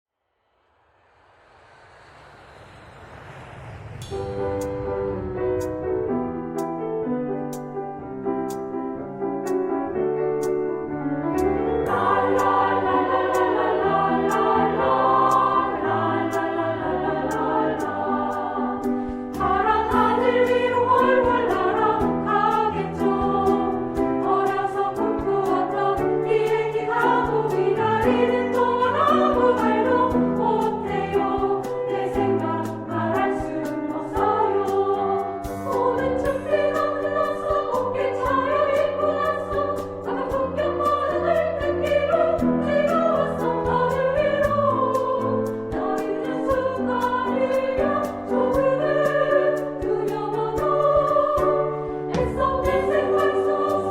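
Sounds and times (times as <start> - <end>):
instrumental accompaniment: 4.0 - 53.9
women's choir singing: 11.8 - 53.9.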